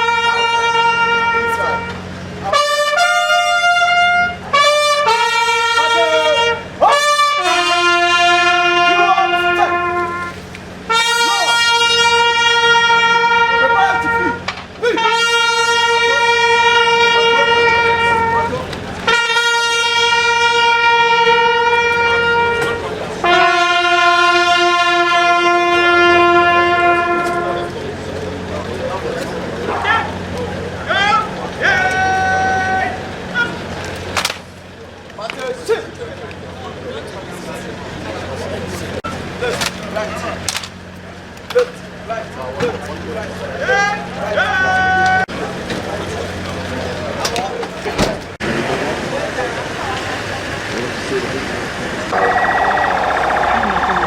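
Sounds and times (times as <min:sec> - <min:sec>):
solo brass horn call: 0:00.0 - 0:28.0
bugle long notes: 0:00.0 - 0:34.4, 0:43.1 - 0:47.1, 0:52.1 - 0:54.0.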